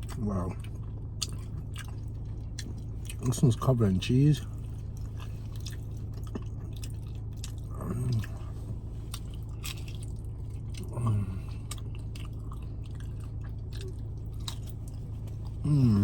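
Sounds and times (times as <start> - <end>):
chewing crunchy chips: 0.0 - 16.0
steady low hum: 0.0 - 16.0
person humming mm: 15.6 - 16.0.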